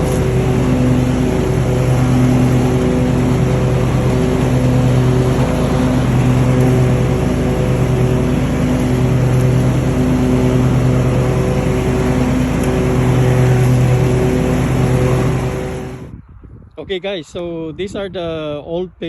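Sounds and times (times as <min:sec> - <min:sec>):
lawnmower engine running: 0:00.0 - 0:16.1.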